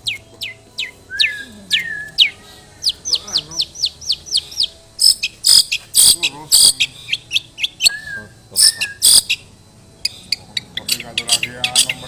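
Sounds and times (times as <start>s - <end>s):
bird scratchy high notes: 0.0s - 12.0s
bird lower whistles: 0.1s - 2.4s, 7.1s - 9.4s
bird quick chirps: 8.6s - 9.4s.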